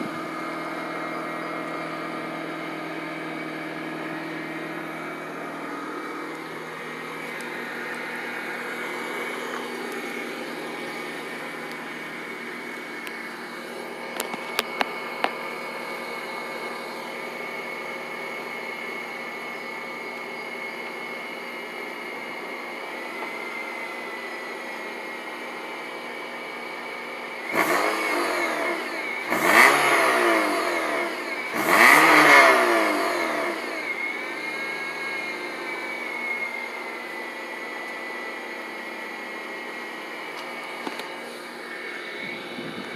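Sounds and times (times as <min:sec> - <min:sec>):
car engine idling: 0:00.0 - 0:42.9
engine revving: 0:27.4 - 0:37.4.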